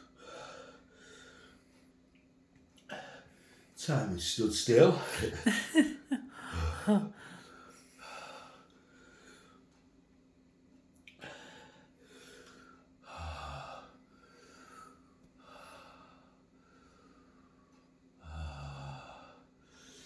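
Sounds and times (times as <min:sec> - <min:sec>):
man breathing hard: 0:00.0 - 0:01.8, 0:06.3 - 0:09.6, 0:11.2 - 0:17.6.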